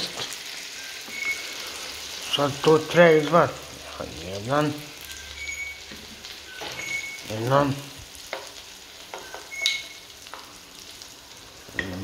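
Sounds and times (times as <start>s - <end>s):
chicken sizzling in hot oil: 0.0s - 12.0s
tongs clicking and tapping: 9.1s - 10.5s.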